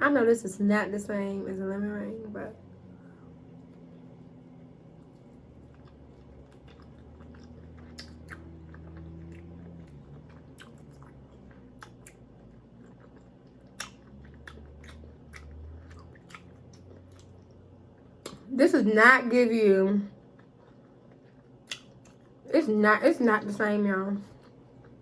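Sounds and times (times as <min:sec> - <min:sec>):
low steady hum: 0:00.0 - 0:25.0
person chewing food: 0:02.6 - 0:18.5, 0:20.1 - 0:22.5, 0:24.2 - 0:25.0
wet mouth clicks and smacks: 0:05.6 - 0:17.5, 0:21.1 - 0:22.2.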